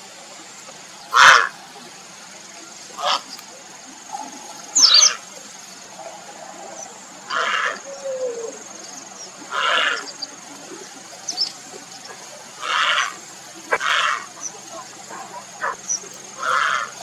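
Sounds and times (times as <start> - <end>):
heron rasping croaks: 1.0 - 1.6, 7.2 - 8.4, 9.5 - 10.2, 11.9 - 17.0.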